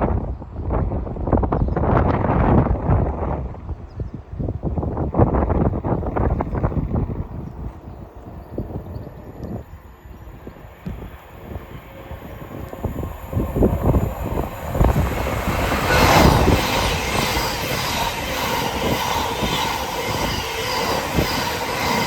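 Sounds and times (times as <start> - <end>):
train wheels on rails: 4.7 - 22.0.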